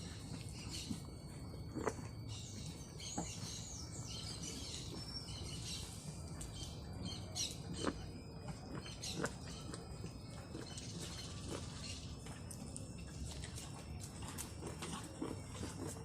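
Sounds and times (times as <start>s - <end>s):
birds chirping and singing: 0.1s - 1.1s, 2.3s - 12.3s.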